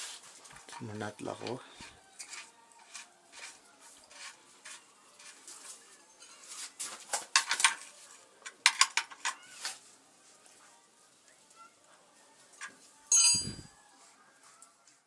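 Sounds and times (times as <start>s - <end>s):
metal hand tools clinking: 13.1s - 13.7s.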